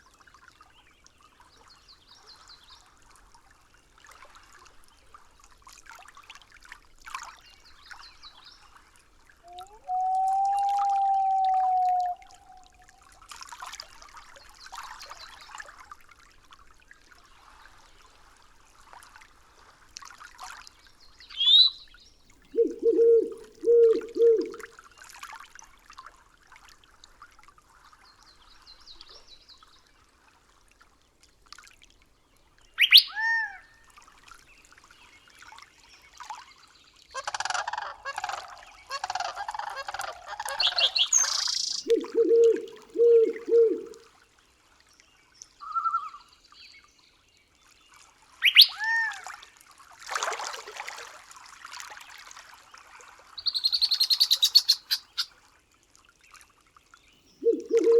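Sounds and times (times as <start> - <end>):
low bird call: 9.5 - 13.0, 21.4 - 21.8, 22.5 - 24.7, 32.8 - 33.6, 37.2 - 44.0, 48.4 - 49.1, 53.4 - 55.3, 57.4 - 57.9
sweeping whistled bird call: 9.5 - 13.0, 21.3 - 21.9, 22.6 - 24.6, 32.8 - 33.5, 40.4 - 44.0, 45.6 - 46.3, 48.4 - 49.0, 53.4 - 55.3, 57.4 - 57.9
high bird chirps: 21.4 - 21.8, 32.8 - 33.2, 40.4 - 43.9, 48.4 - 48.8, 53.4 - 55.3.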